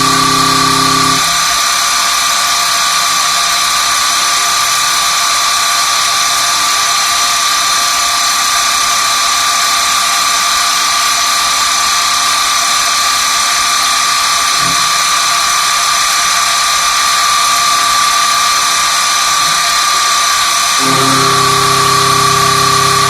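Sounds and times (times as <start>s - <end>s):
low drive hum: 0.0s - 1.4s, 20.8s - 23.0s
lathe machine whine: 0.0s - 23.0s.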